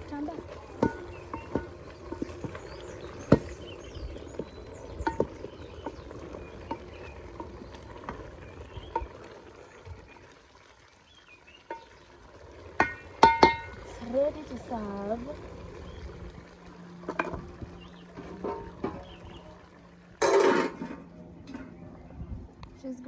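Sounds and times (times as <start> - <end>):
metal pot and utensils clinking: 0.0 - 9.3, 12.8 - 14.9, 18.2 - 19.3, 20.2 - 21.8.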